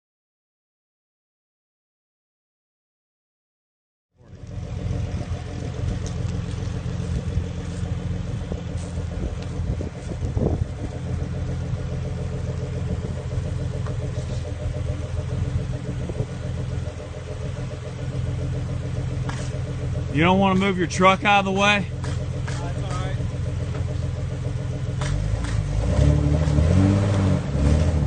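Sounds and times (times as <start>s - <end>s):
vehicle engine idling: 4.2s - 26.6s.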